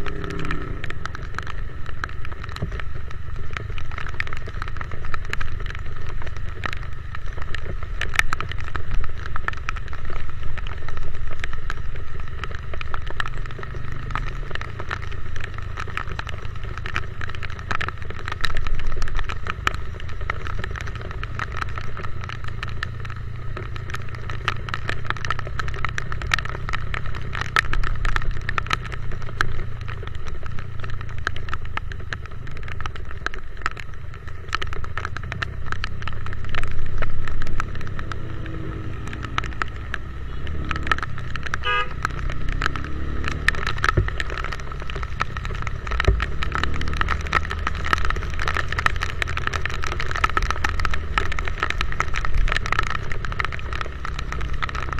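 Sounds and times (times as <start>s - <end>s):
motorcycle engine hum: 0.0s - 54.9s
raindrops ticking on camera: 0.0s - 54.9s
short horn beep: 41.6s - 41.9s.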